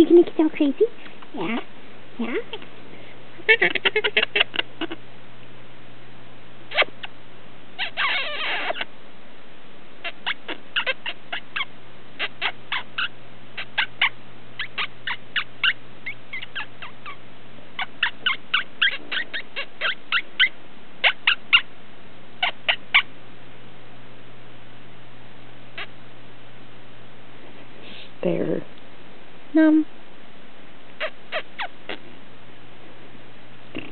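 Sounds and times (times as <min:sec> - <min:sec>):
parrot squawk: 0:03.4 - 0:05.0, 0:06.7 - 0:07.1, 0:07.8 - 0:08.9, 0:10.0 - 0:17.2, 0:17.8 - 0:21.7, 0:22.4 - 0:23.1, 0:31.0 - 0:32.0.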